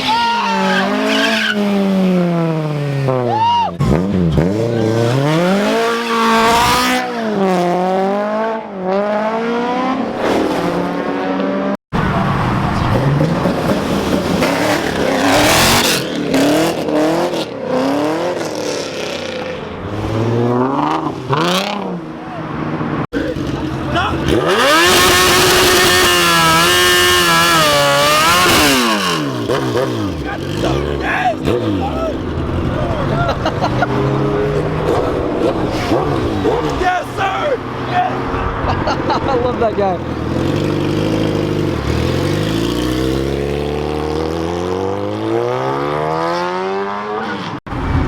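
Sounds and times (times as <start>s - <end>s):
car engine accelerating: 0.8s - 48.0s.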